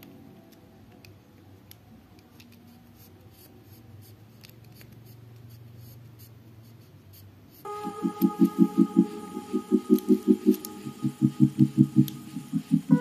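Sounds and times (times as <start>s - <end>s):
low steady hum: 7.7s - 13.0s.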